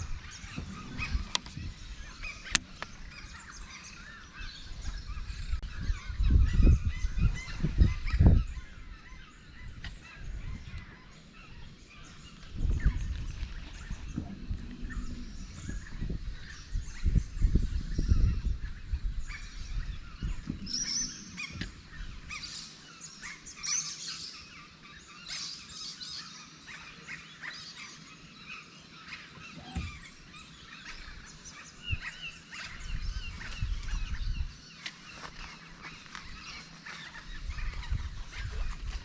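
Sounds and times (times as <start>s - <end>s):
small birds chirping: 0.0s - 39.0s
low rumble: 10.3s - 19.0s.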